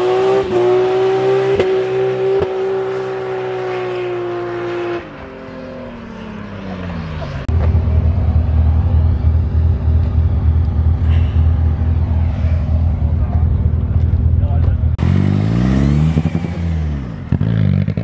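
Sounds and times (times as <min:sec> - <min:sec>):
car engine revving high: 0:00.0 - 0:05.1
car engine idling: 0:07.5 - 0:15.0.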